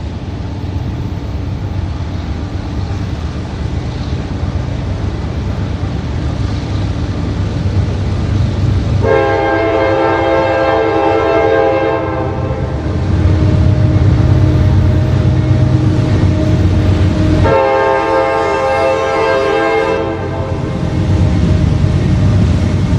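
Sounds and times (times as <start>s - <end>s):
diesel locomotive engines rumbling: 0.0s - 22.9s
train air horn: 9.0s - 12.8s, 13.4s - 20.8s.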